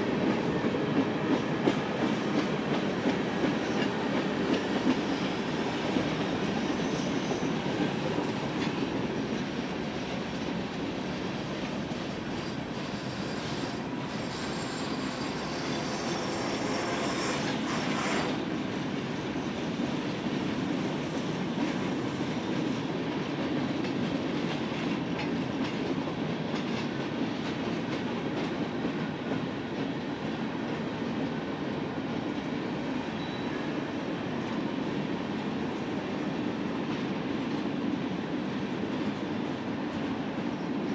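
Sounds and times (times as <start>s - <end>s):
wheels clacking over rail joints: 0.2s - 19.1s.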